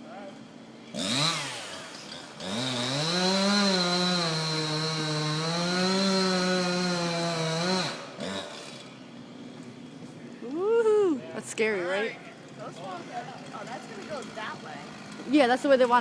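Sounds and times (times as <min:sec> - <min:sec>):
chainsaw revving and cutting: 0:00.9 - 0:10.0, 0:12.8 - 0:15.9.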